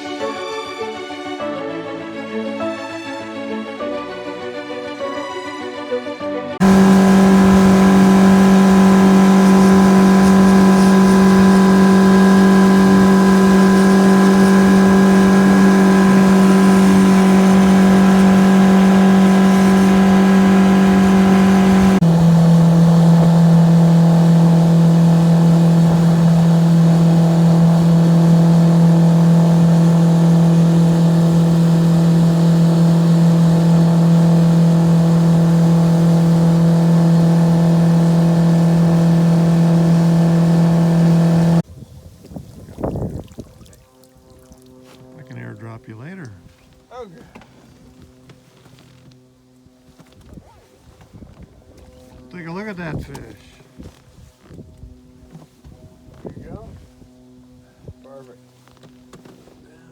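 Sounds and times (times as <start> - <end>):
boat motor humming: 6.6 - 41.6.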